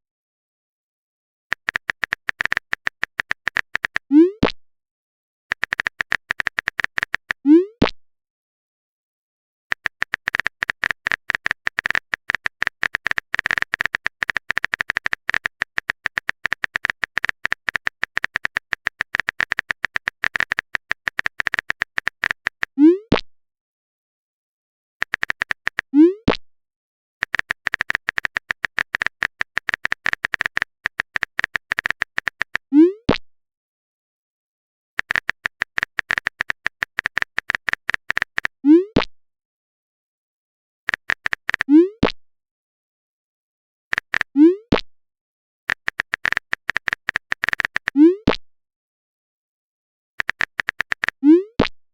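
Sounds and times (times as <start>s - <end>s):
phone keyboard typing clicks: 1.5s - 4.1s, 5.5s - 7.4s, 9.7s - 22.8s, 25.0s - 25.9s, 27.2s - 32.7s, 35.0s - 38.6s, 40.9s - 41.7s, 43.9s - 44.4s, 45.7s - 48.4s, 50.2s - 51.7s.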